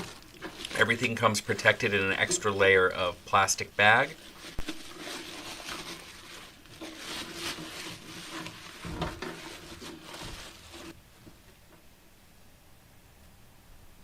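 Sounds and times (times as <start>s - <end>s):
plastic bag rustling: 0.0s - 11.0s.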